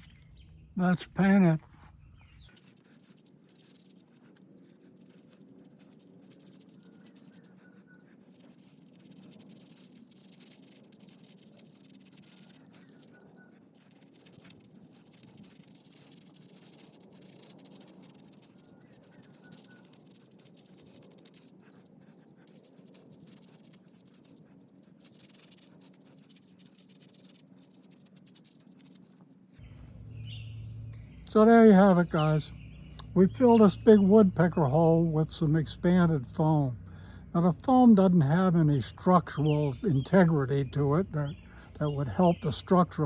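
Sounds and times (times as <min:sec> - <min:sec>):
distant bird chirps: 0:00.0 - 0:17.0, 0:17.7 - 0:23.5, 0:28.6 - 0:43.0
steady low hum: 0:28.0 - 0:43.0.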